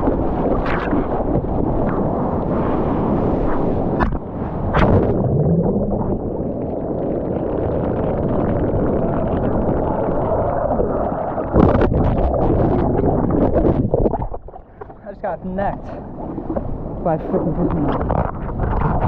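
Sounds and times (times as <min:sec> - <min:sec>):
wind against camera housing: 0:00.0 - 0:06.6, 0:10.5 - 0:19.0
muffled rush of ocean water: 0:00.0 - 0:19.0
water splashing: 0:00.0 - 0:19.0.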